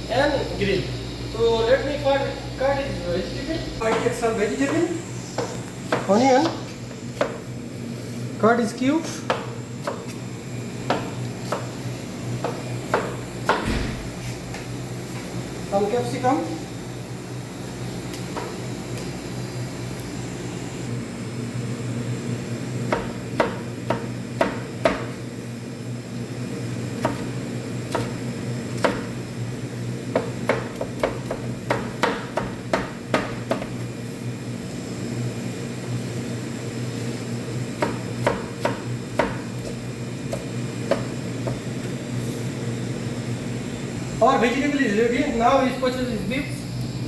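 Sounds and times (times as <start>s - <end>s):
steady low hum: 0.0s - 47.0s
knife chopping on cutting board: 3.9s - 7.4s, 9.2s - 10.2s, 10.8s - 11.8s, 12.4s - 14.3s, 18.2s - 18.6s, 22.9s - 25.2s, 27.0s - 29.2s, 30.1s - 33.8s, 37.8s - 42.0s.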